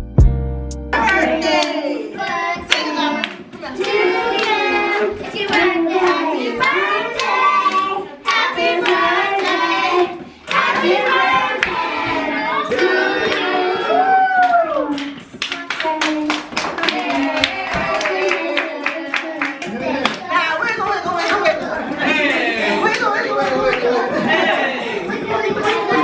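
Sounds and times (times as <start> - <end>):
voices singing: 1.0 - 15.9
hand clapping: 14.4 - 20.3.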